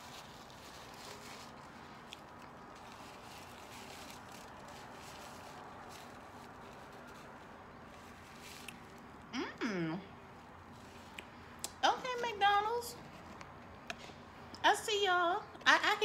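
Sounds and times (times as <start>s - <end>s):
chewing crispy food: 0.0s - 9.3s
soft mouth clicks: 11.1s - 11.8s.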